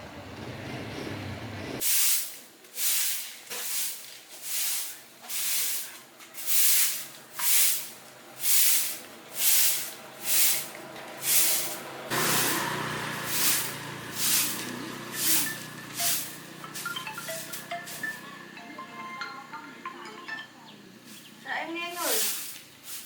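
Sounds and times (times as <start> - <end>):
short bursts of hissing: 1.8 - 12.6, 22.0 - 23.0.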